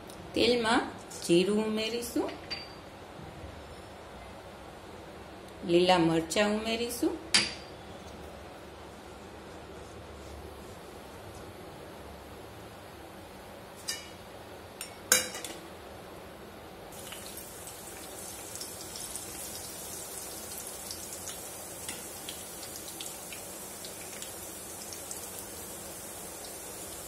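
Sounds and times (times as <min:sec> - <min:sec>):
seeds frying in hot oil: 0:16.9 - 0:27.0.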